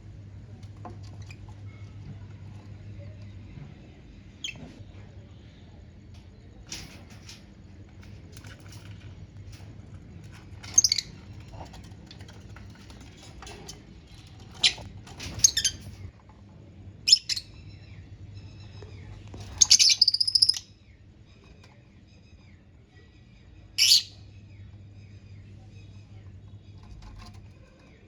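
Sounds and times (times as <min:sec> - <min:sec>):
lovebirds chirping: 0:17.0 - 0:21.4, 0:22.1 - 0:26.8.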